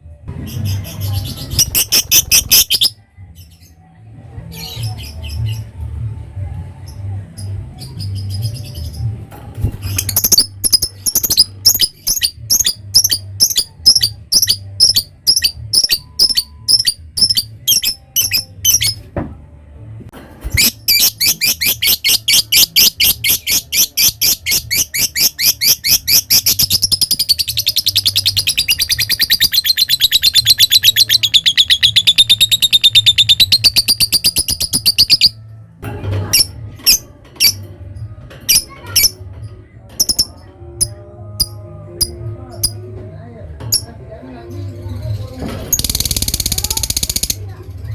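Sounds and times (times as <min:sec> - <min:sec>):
lovebird chirping: 0:00.7 - 0:02.9, 0:09.9 - 0:19.0, 0:20.5 - 0:35.4, 0:40.0 - 0:40.4
lovebird rattling trill: 0:10.0 - 0:19.0, 0:40.0 - 0:40.3.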